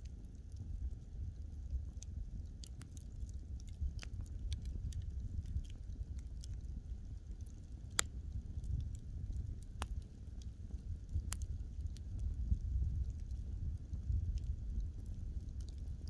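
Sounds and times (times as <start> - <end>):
burning logs crackling and popping: 0.0 - 16.0
fire flame rumble: 0.0 - 16.0.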